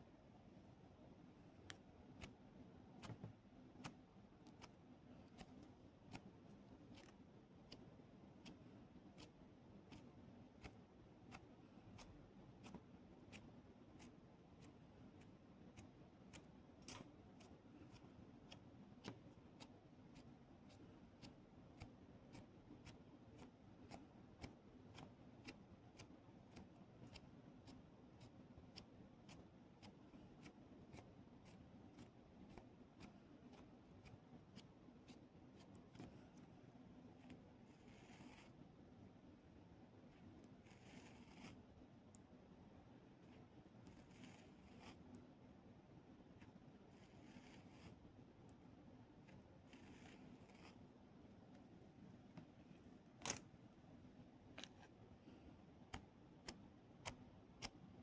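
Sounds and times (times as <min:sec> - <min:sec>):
faint steady clicking: 0:01.5 - 0:36.6, 0:40.1 - 0:42.4.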